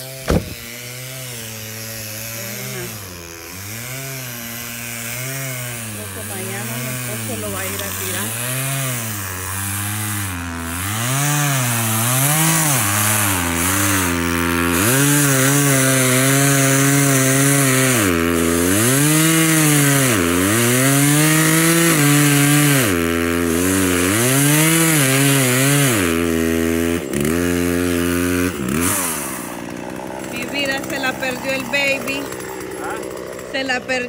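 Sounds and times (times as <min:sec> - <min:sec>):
chainsaw cutting a tree: 0:00.0 - 0:34.0.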